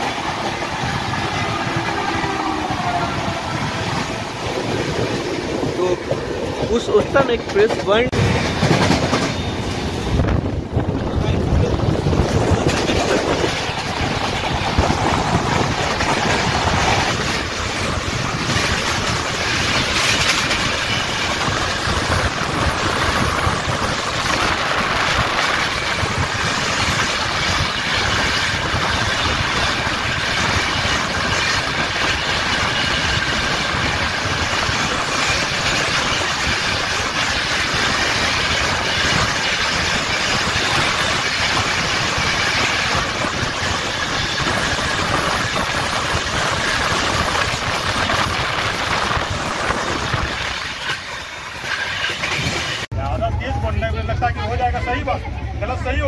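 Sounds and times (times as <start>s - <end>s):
wind buffeting the microphone: 0.0s - 52.9s
passenger train rushing past: 0.0s - 56.0s.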